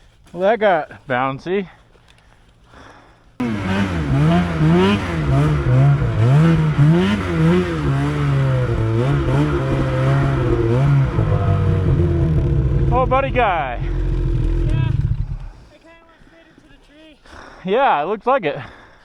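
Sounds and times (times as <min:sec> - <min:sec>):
snowmobile engine revving: 0:03.4 - 0:15.8.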